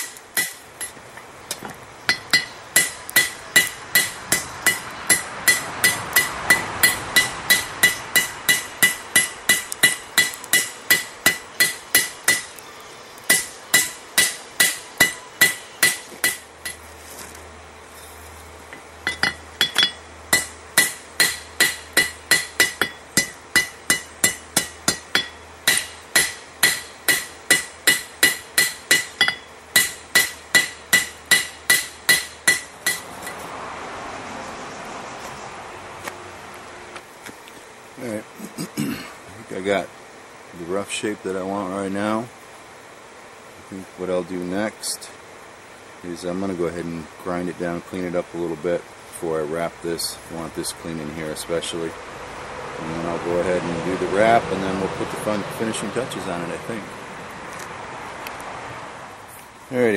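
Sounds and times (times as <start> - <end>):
hammer striking anvil: 0.0 - 1.0, 2.1 - 12.5, 13.3 - 16.8, 19.1 - 33.4.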